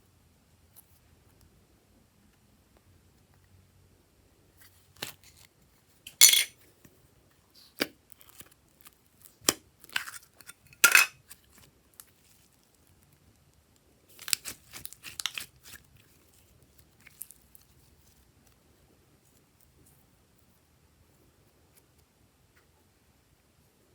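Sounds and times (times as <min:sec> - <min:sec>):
hands working with slime: 0:07.5 - 0:18.6
crinkling tearing and clicking: 0:14.1 - 0:16.2, 0:17.0 - 0:17.6.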